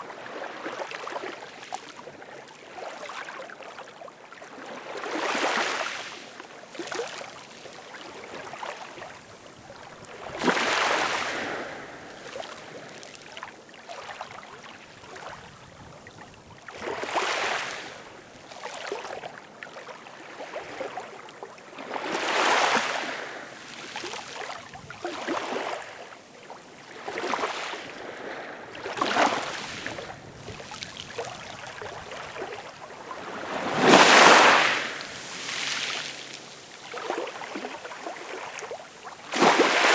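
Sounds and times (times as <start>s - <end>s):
ocean waves surging: 32.9s - 36.4s, 39.3s - 39.9s.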